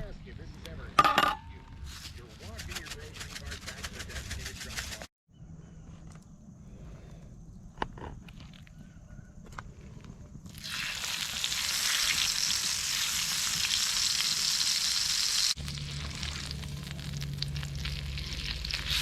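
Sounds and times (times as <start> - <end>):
steak sizzling: 10.5 - 19.0.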